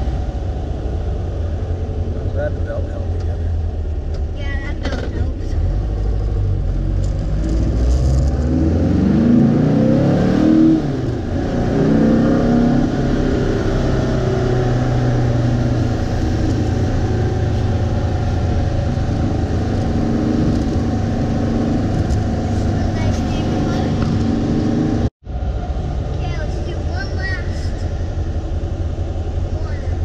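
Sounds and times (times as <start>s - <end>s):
car engine accelerating: 0.0s - 30.0s.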